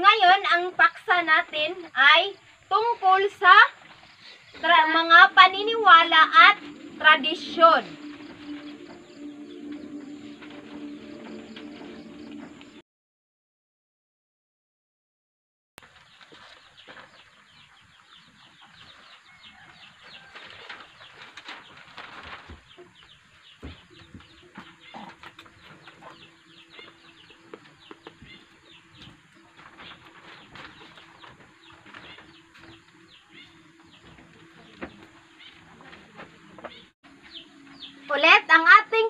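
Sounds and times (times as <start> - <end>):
small birds chirping: 15.9 - 38.8.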